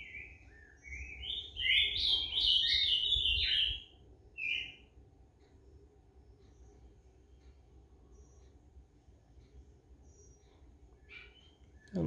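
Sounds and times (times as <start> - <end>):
songbird chirping and whistling: 0.0 - 5.0, 10.0 - 12.0.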